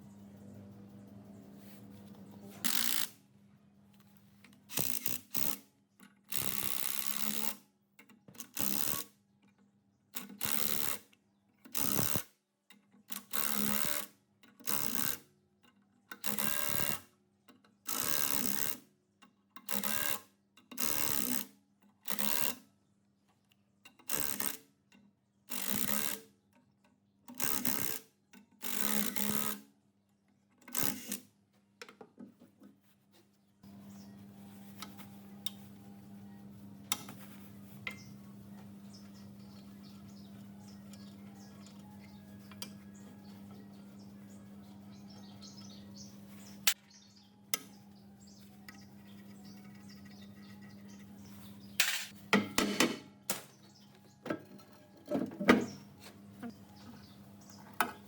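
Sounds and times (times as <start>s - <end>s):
filing metal scraping strokes: 38.9s - 46.8s, 47.6s - 53.0s.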